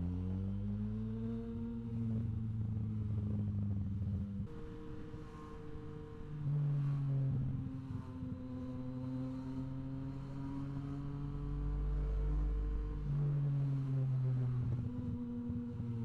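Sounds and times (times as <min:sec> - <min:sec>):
motorcycle engine running steadily: 0:01.5 - 0:06.5.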